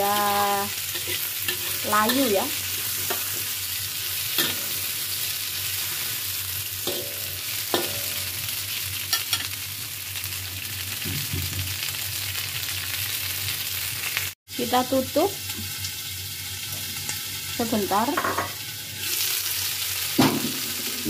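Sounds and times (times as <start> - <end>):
peppers sizzling in oil: 0.0 - 21.0
metal spatula clinking on pan: 4.4 - 4.8, 6.8 - 8.3.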